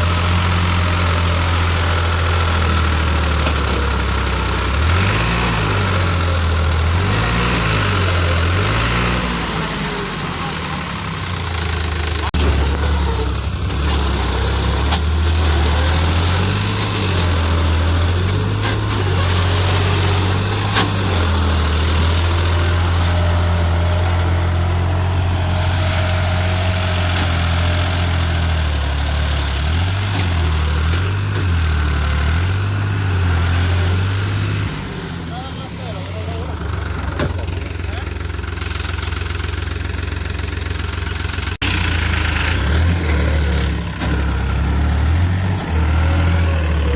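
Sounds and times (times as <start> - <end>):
tractor diesel engine revving: 0.0 - 46.9.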